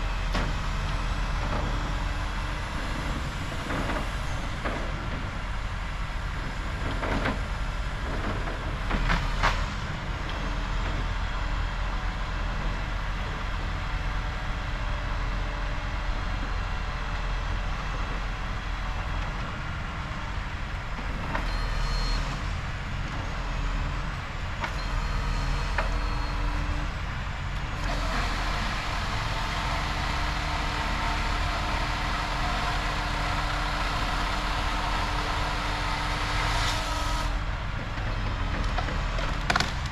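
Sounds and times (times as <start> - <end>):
grapple saw engine humming: 27.6 - 38.1.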